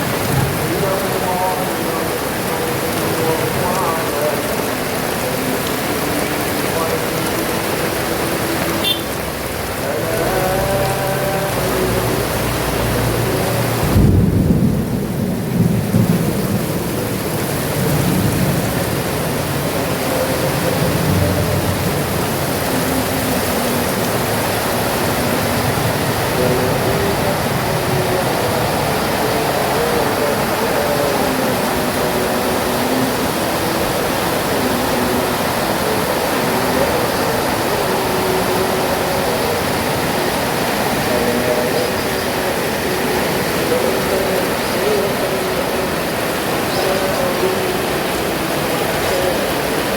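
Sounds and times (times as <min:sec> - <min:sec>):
heavy rain pouring: 0:00.0 - 0:49.9
deep thunder rumbling: 0:12.1 - 0:19.8.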